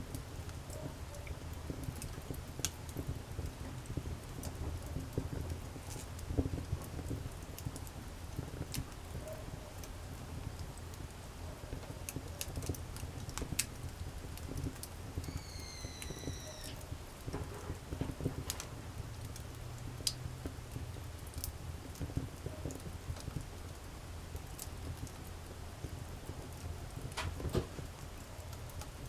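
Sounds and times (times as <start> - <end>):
wood fire crackling and popping: 0.0 - 29.0
thin whistling tone: 15.3 - 16.8.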